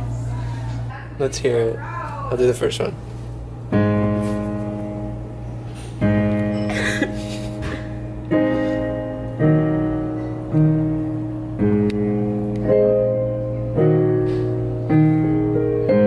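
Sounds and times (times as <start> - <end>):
steady low hum: 0.0 - 16.0
piano chords: 3.4 - 16.0.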